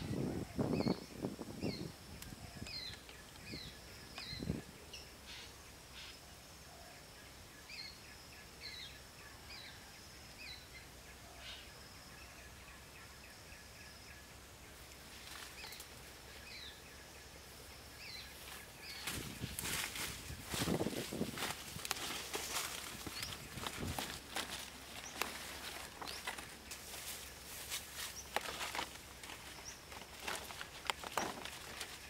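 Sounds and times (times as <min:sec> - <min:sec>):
bird chirping: 0:00.0 - 0:32.0
rustling: 0:18.3 - 0:32.0.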